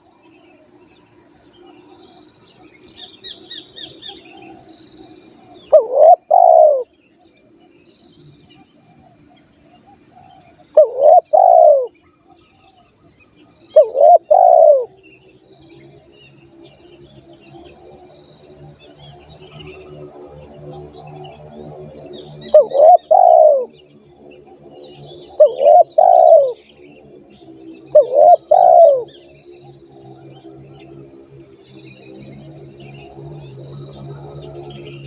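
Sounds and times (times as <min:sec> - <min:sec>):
insects droning: 0:00.0 - 0:35.0
dove cooing: 0:05.6 - 0:06.9, 0:10.3 - 0:12.0, 0:13.7 - 0:14.9, 0:22.5 - 0:23.8, 0:25.4 - 0:26.7, 0:27.9 - 0:29.2.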